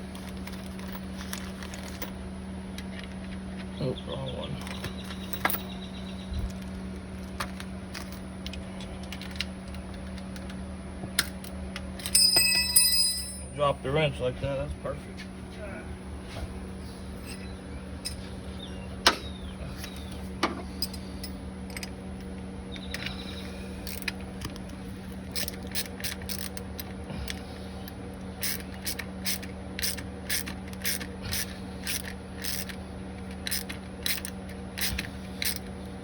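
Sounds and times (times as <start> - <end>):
ratcheting wrench clicking: 23.8 - 24.3, 25.3 - 27.4, 28.4 - 35.7.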